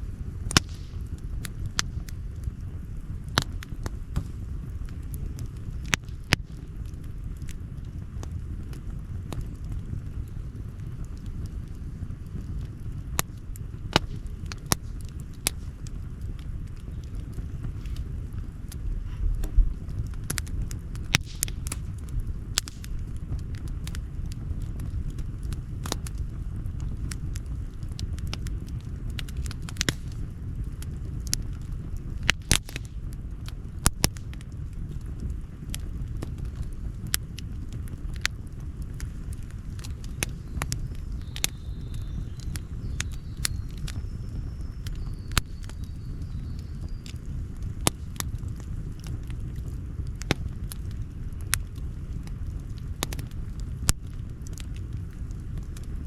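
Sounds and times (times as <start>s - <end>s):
campfire crackling and popping: 0.0s - 56.0s
low steady rumble: 0.0s - 56.0s
low rumble: 6.8s - 32.2s.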